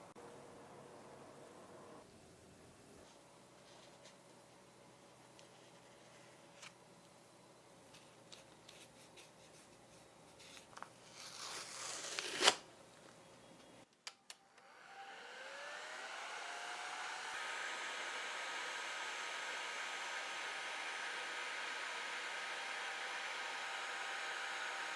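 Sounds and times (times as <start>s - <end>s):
blower motor whining: 14.5s - 24.9s.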